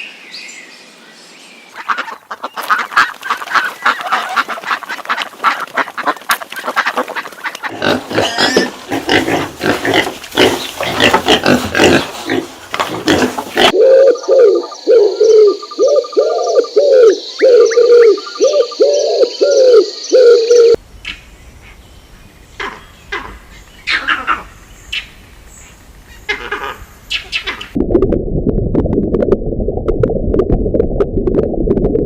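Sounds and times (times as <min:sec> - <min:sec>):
dense noisy animal calls: 0:01.8 - 0:20.8.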